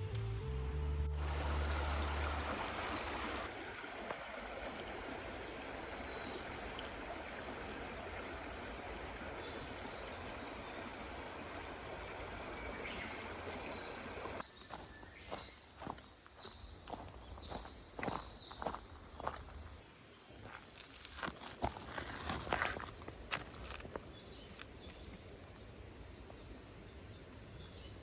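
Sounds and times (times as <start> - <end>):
flowing water rushing: 1.2 - 16.0.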